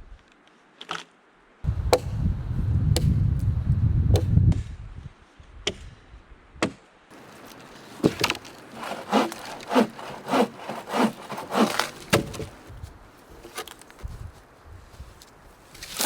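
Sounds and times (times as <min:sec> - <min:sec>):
sharp wooden knocks: 0:06.6 - 0:12.7
hand saw cutting wood: 0:07.1 - 0:12.7.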